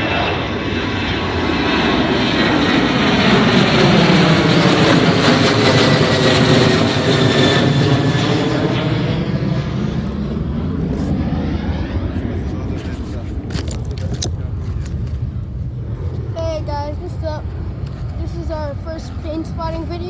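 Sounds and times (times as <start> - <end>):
jet airliner taking off: 0.0 - 20.0.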